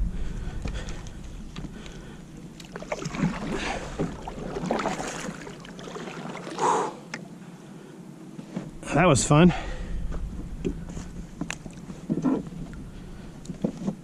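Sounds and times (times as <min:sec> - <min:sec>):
small water splashes: 0:00.8 - 0:07.4
loud splash: 0:02.6 - 0:06.6.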